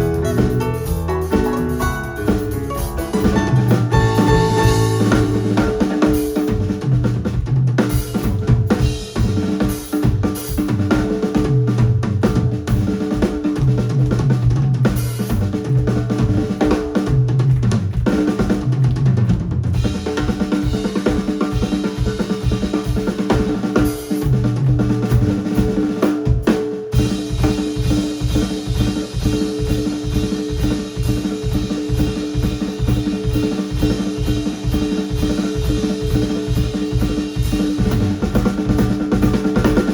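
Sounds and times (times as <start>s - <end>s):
live band music: 0.0s - 10.8s
busy drum kit: 0.0s - 39.9s.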